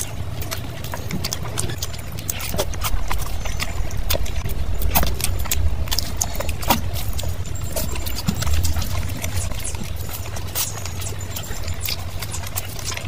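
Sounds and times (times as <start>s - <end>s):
wet chewing and lip smacking: 0.0s - 13.0s
low rumble: 0.1s - 12.8s.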